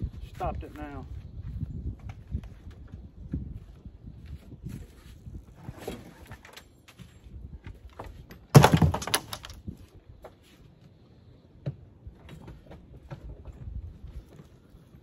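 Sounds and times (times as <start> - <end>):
knocks and thumps: 8.5 - 9.6.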